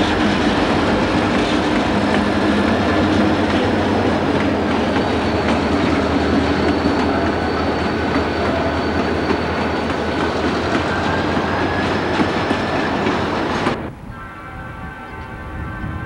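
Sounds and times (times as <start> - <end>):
steady held tones: 0.0 - 13.6
freight train rumbling past: 0.0 - 16.0
faint high squeal: 4.8 - 13.0.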